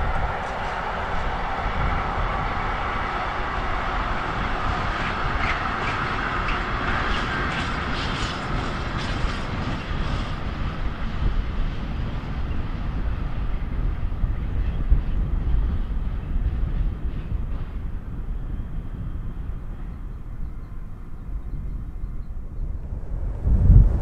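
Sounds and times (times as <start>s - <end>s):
train wheels clattering: 0.0s - 10.6s
low train rumble: 0.0s - 24.0s
wind on microphone: 0.0s - 24.0s.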